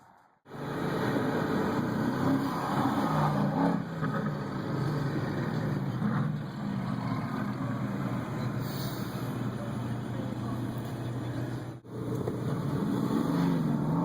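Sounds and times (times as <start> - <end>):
car engine idling deep exhaust: 4.0 - 14.0.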